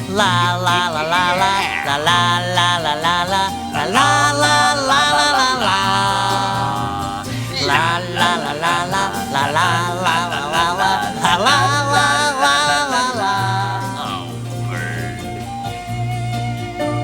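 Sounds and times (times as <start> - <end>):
person singing la la la: 0.0 - 16.1
guitar-led band playing: 0.0 - 17.0.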